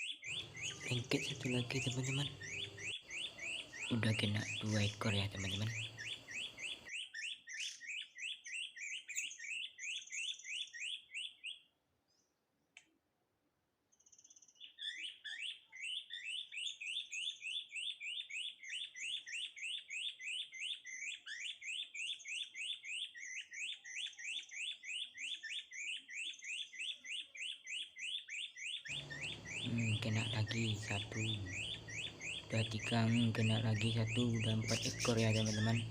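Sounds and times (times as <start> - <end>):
bird rapid rising chirps: 0.0 - 11.4, 23.0 - 35.9.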